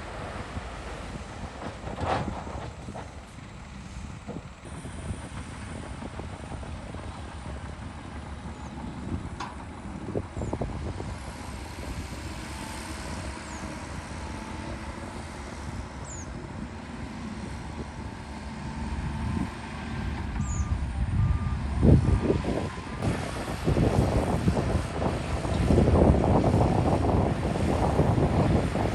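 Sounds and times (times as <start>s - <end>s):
heavy diesel machinery rumbling: 0.0s - 28.9s
reversing alarm beeping: 20.4s - 23.1s.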